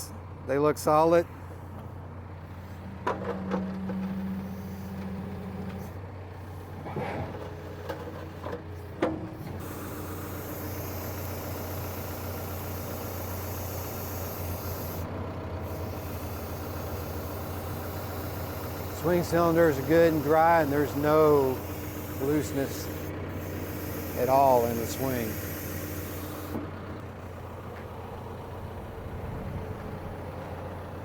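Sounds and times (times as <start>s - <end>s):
diesel engine running: 0.0s - 31.0s
steady hiss: 15.8s - 26.6s.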